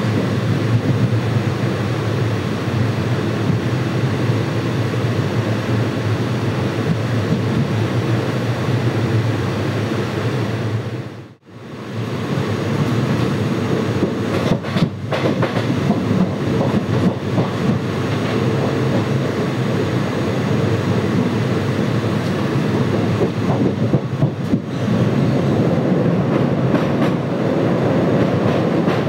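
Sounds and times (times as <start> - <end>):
train wheels rumbling on rails: 0.0 - 29.0
clicking and rattling over rail joints: 14.0 - 19.1, 23.0 - 24.8, 28.2 - 29.0.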